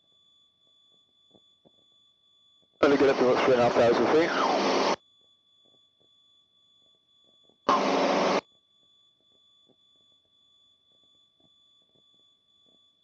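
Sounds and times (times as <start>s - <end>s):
burst of cockpit noise: 2.8s - 5.0s, 7.7s - 8.4s.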